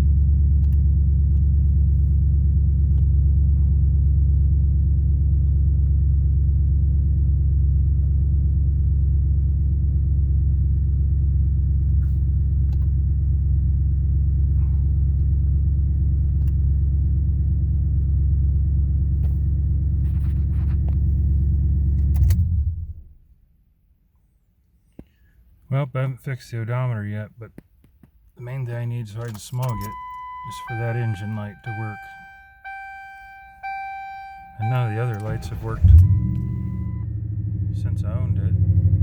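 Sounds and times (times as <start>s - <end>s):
car engine idling: 0.0s - 23.2s, 28.8s - 39.0s
ignition switch click: 29.2s - 37.0s.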